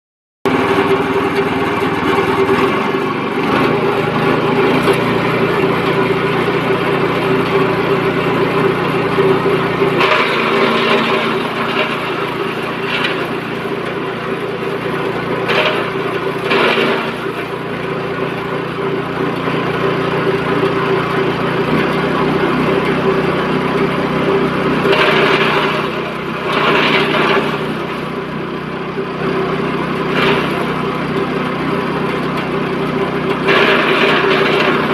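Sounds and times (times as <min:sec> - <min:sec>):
grass chopper engine running: 0:00.5 - 0:34.9
loud rasping bursts: 0:00.6 - 0:17.6, 0:24.8 - 0:28.1, 0:30.1 - 0:30.8, 0:33.4 - 0:34.9.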